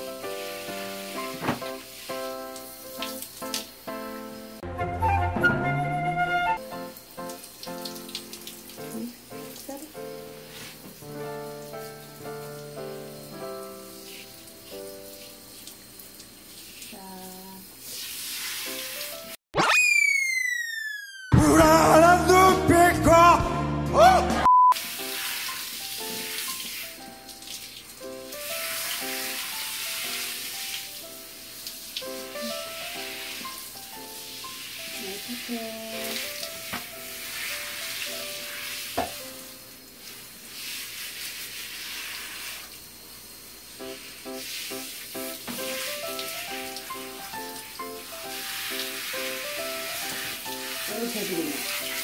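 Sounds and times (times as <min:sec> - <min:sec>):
shower head spraying water: 0:00.0 - 0:04.6, 0:06.6 - 0:19.4, 0:24.8 - 0:52.0
man singing into microphone: 0:21.3 - 0:24.4
soft background music: 0:21.4 - 0:39.6, 0:43.8 - 0:52.0
short beep: 0:24.4 - 0:24.8.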